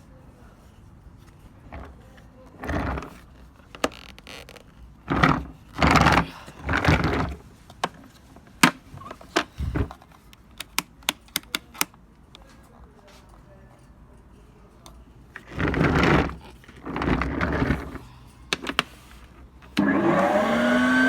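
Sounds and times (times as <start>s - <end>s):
handling knocks and thumps: 1.6s - 10.1s.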